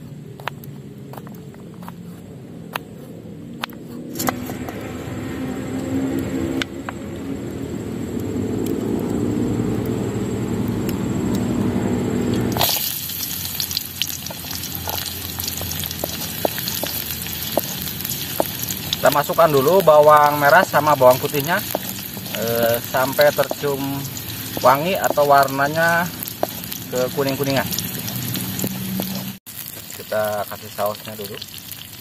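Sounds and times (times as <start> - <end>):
food sizzling in a wok: 11.2 - 32.0.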